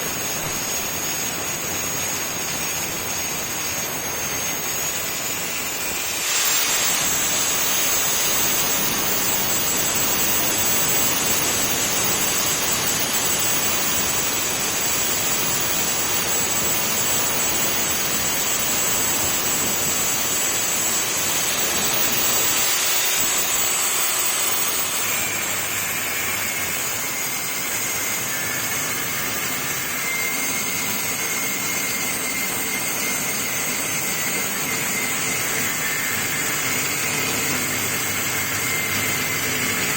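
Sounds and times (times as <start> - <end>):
angle grinder grinding metal: 0.1 - 39.9.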